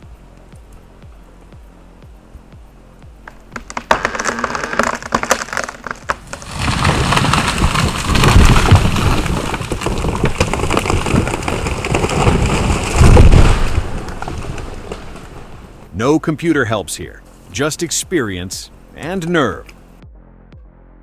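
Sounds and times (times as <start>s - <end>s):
wood cracking and snapping: 3.2s - 15.9s
tree crashing to the ground: 3.3s - 15.9s.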